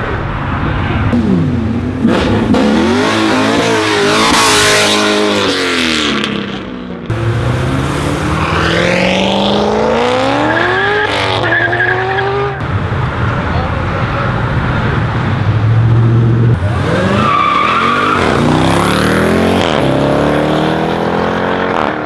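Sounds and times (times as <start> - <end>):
car engine revving: 0.0 - 22.0
tyres squealing: 16.6 - 18.9.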